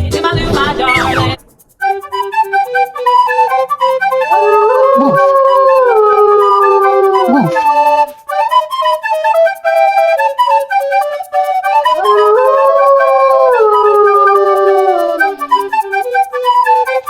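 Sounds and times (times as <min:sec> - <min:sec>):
bouncy woodwind music with ticking beat: 0:00.9 - 0:17.0
wolf howling: 0:04.3 - 0:07.7, 0:12.0 - 0:15.5.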